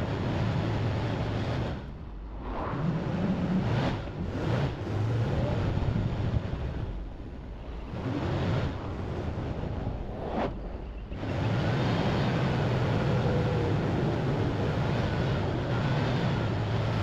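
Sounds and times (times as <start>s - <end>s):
heavy vehicle engine revving: 2.8s - 6.9s.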